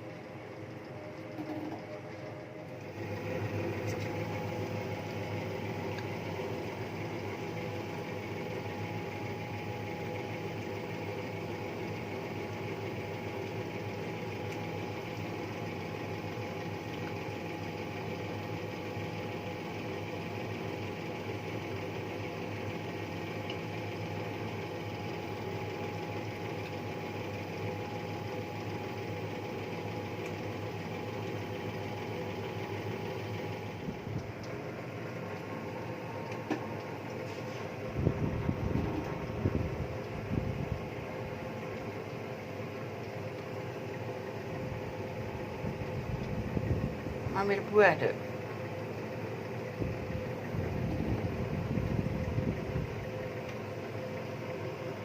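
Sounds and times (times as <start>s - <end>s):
electric motor hum: 2.6s - 42.6s.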